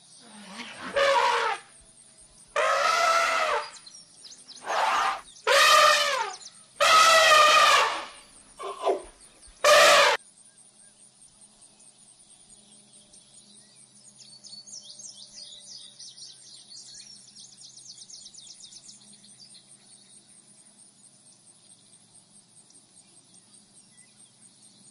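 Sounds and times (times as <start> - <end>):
insects trilling: 0.0 - 24.9
birds chirping: 2.6 - 10.2.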